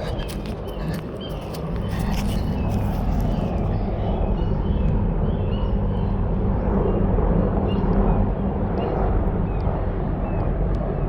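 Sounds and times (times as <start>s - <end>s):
birds chirping: 0.0s - 6.2s
helicopter rotor drone: 0.0s - 11.0s.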